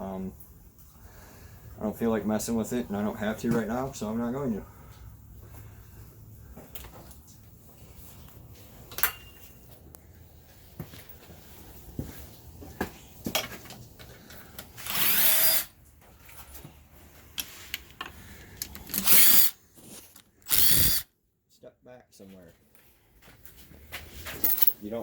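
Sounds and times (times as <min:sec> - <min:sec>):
clanks of tools and metal parts: 0:08.8 - 0:09.8, 0:13.3 - 0:15.5, 0:16.2 - 0:20.6, 0:24.2 - 0:25.0
power drill whirring: 0:14.8 - 0:15.7, 0:18.9 - 0:19.6, 0:20.4 - 0:21.0.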